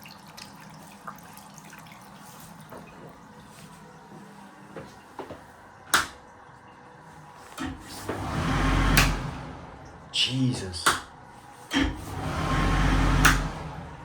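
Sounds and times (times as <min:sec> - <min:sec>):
hand dryer switch click: 0:05.9 - 0:06.2, 0:08.9 - 0:09.4, 0:10.8 - 0:12.0, 0:13.2 - 0:13.6
hand dryer rumbling: 0:07.3 - 0:14.0.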